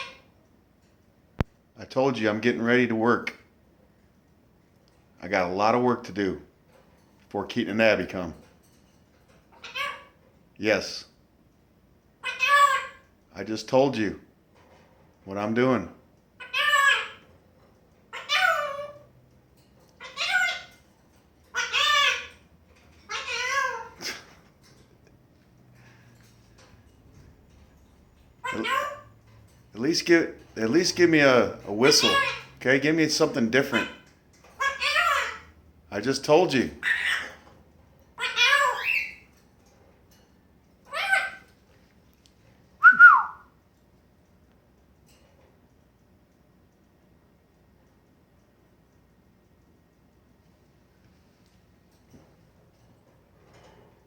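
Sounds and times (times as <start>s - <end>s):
parrot speech-like calls: 0.0s - 0.3s, 9.6s - 10.2s, 12.2s - 13.1s, 16.4s - 17.3s, 18.1s - 19.1s, 20.0s - 20.8s, 21.5s - 22.4s, 23.1s - 24.3s, 28.4s - 29.1s, 31.4s - 32.6s, 33.2s - 35.5s, 36.6s - 37.4s, 38.2s - 39.2s, 40.9s - 41.5s
parrot whistle rising and falling: 42.8s - 43.5s.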